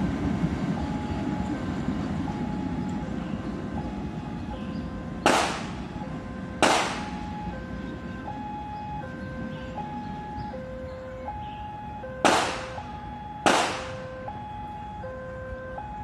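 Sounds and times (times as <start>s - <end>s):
passenger train rumbling: 0.0s - 16.0s
sharp bangs: 5.2s - 5.9s, 6.6s - 7.3s, 12.2s - 14.1s.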